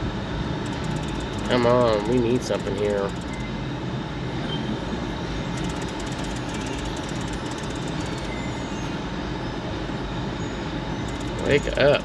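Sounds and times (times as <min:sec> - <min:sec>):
din of slot machines: 0:00.6 - 0:03.6, 0:10.9 - 0:12.0
fast faint ticking: 0:00.6 - 0:03.6, 0:05.4 - 0:08.6, 0:11.0 - 0:12.0.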